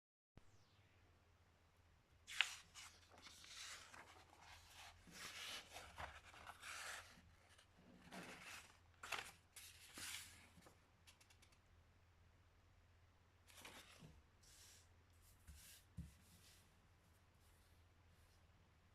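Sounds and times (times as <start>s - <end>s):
crisp paper crackle: 2.3s - 11.5s
paper rustling and folding: 2.3s - 11.6s, 13.5s - 14.1s.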